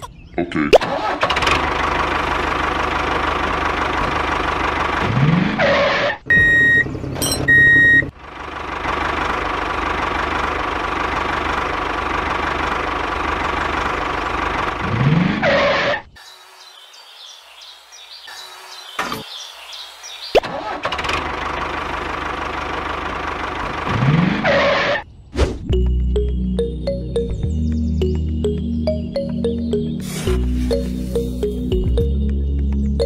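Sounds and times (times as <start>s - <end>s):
tractor engine running: 0.8s - 15.9s, 18.3s - 25.0s, 25.7s - 33.0s.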